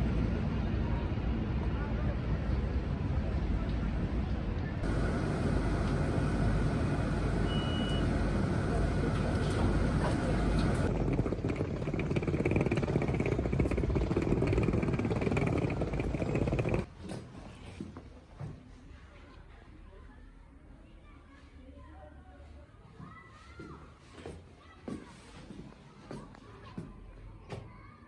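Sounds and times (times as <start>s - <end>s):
moving vehicle rumble: 4.8s - 16.9s.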